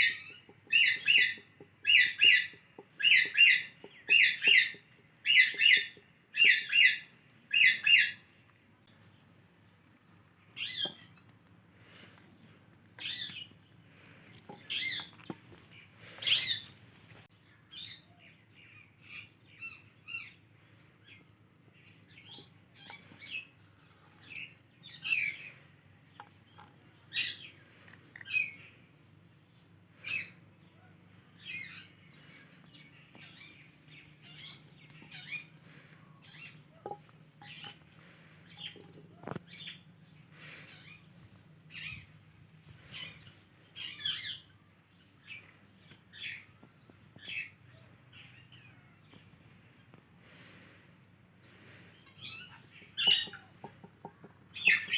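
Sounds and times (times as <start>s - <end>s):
parrot chirping and squawking: 0.0s - 8.2s, 52.2s - 53.5s, 54.6s - 54.9s.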